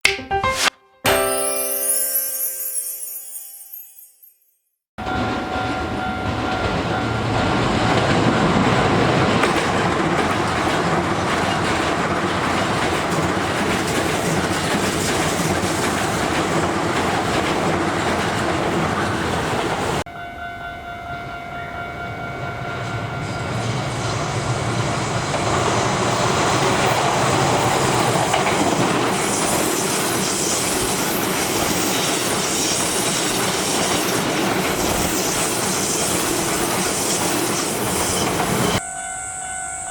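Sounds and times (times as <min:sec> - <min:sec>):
electric train passing: 0:05.0 - 0:39.9
wheels clacking over rail joints: 0:07.8 - 0:20.0.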